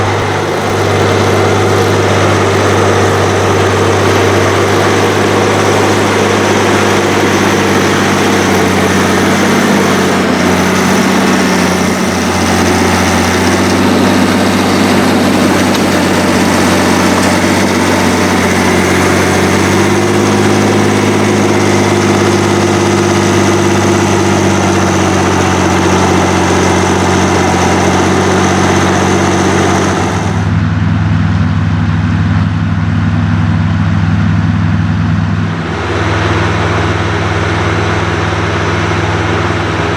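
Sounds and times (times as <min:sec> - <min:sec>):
heavy diesel engines under load: 0:00.0 - 0:39.9.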